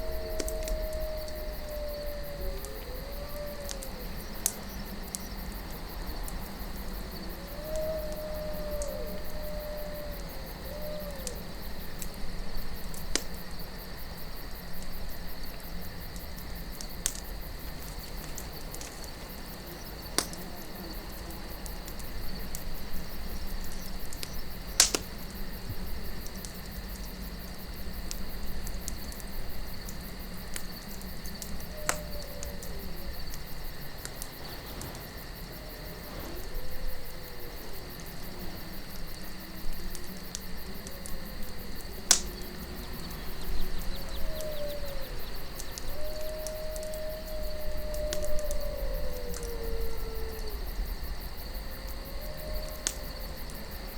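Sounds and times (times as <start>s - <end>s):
faint animal calls: 0.0s - 5.3s, 31.4s - 33.6s, 34.2s - 50.6s
crickets chirring: 0.0s - 53.9s
low wind rumble: 0.0s - 53.9s
campfire crackling and popping: 2.3s - 49.6s.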